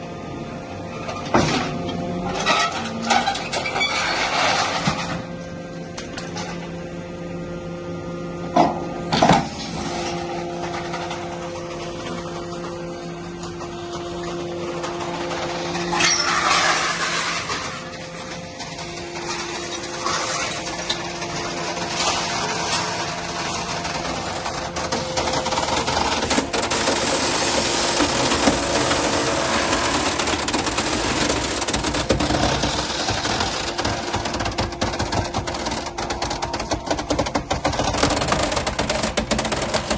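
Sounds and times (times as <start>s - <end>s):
hydraulic pump humming: 0.0s - 39.9s.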